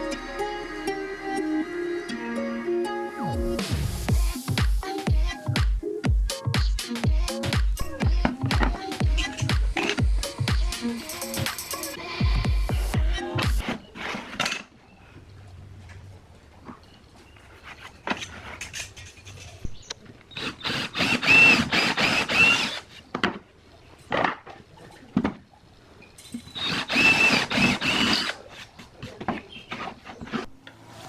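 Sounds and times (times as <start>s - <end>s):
power drill running: 20.3s - 23.0s, 26.5s - 28.4s.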